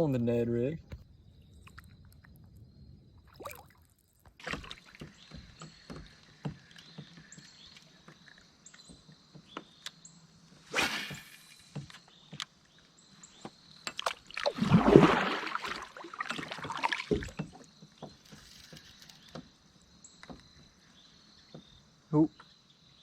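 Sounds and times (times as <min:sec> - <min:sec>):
light water sounds: 0:03.2 - 0:06.8, 0:13.8 - 0:17.7.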